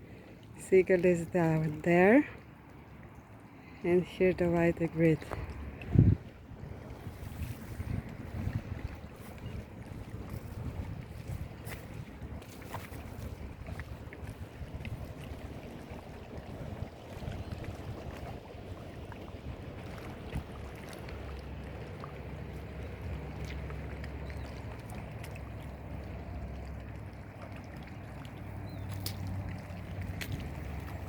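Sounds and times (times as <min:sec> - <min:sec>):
wind on microphone: 0:05.1 - 0:20.8.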